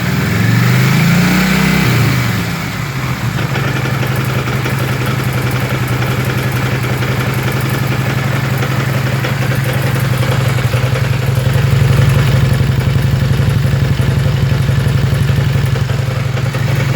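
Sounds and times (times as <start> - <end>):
motorcycle engine idling: 0.0 - 16.9
rapid mechanical clatter: 0.2 - 16.9.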